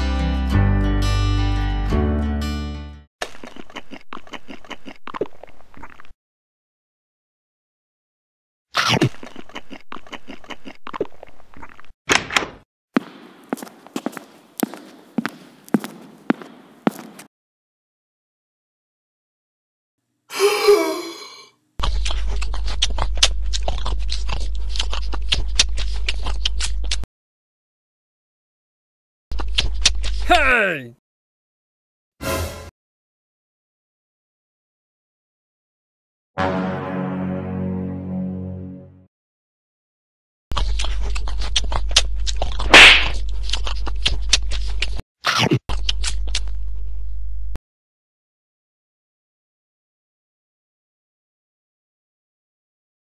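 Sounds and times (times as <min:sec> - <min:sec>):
loud chewing: 0:03.2 - 0:06.2, 0:08.8 - 0:11.9, 0:21.8 - 0:27.1, 0:29.3 - 0:30.3, 0:40.5 - 0:46.8.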